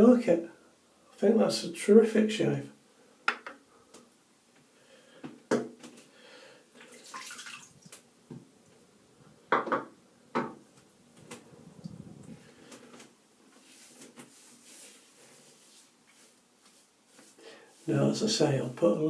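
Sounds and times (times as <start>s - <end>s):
water splashing in a sink: 6.8s - 8.0s.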